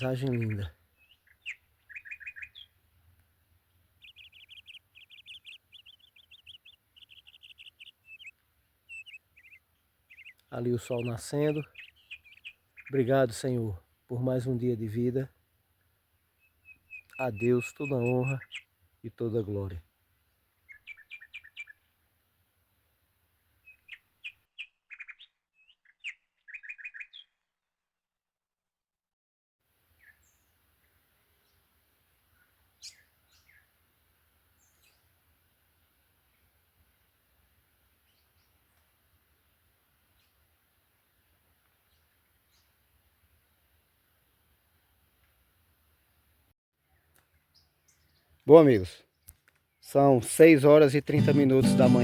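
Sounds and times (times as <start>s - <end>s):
songbird chirping: 0.0s - 27.5s, 29.9s - 33.9s, 34.5s - 37.1s, 46.8s - 52.0s
songbird singing high notes: 4.0s - 8.3s, 8.9s - 13.0s, 16.6s - 18.7s, 51.1s - 52.0s.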